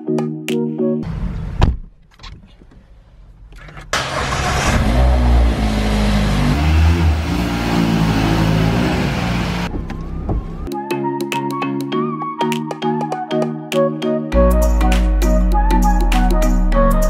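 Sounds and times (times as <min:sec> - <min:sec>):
car engine starting and revving: 0:02.9 - 0:10.7.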